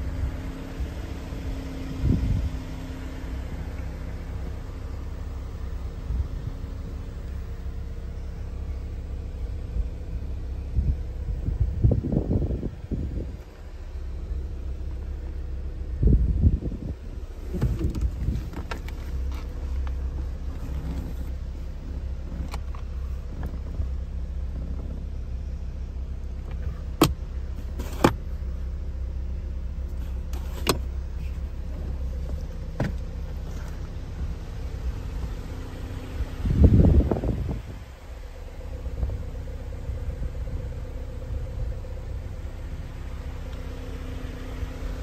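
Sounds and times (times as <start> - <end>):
car engine idling: 0.0 - 45.0
rustling thump: 29.9 - 34.0.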